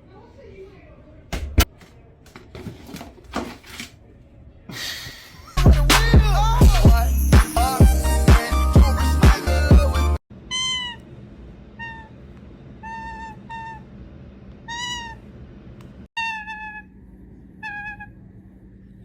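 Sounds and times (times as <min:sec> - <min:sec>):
toucan mewing calls: 0:10.5 - 0:11.1, 0:12.8 - 0:13.9, 0:14.7 - 0:15.2, 0:16.2 - 0:17.0, 0:17.6 - 0:18.2.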